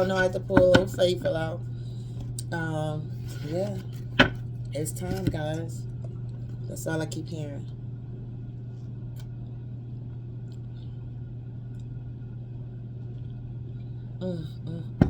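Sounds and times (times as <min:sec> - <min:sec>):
person speaking: 0:00.0 - 0:01.6, 0:02.4 - 0:05.9, 0:06.7 - 0:07.7
steady low hum: 0:00.0 - 0:15.0.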